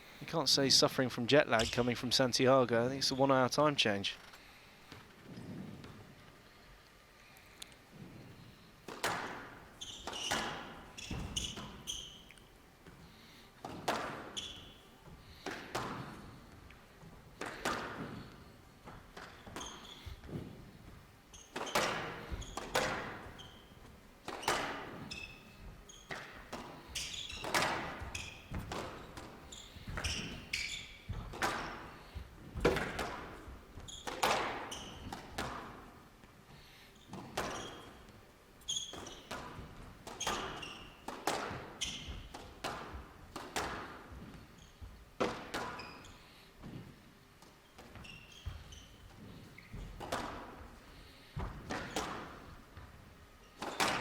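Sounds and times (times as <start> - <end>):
shoes squeaking on court floor: 1.5 - 1.9, 4.0 - 6.3, 8.0 - 36.0, 36.9 - 54.0
squash ball knocks: 8.9 - 9.6, 21.6 - 23.4, 31.1 - 31.8, 32.5 - 33.4, 34.1 - 35.8.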